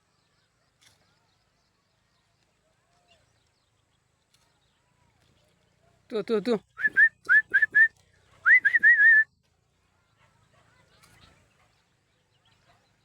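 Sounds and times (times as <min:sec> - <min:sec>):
person whistling rising notes: 0:06.8 - 0:07.9, 0:08.5 - 0:09.2.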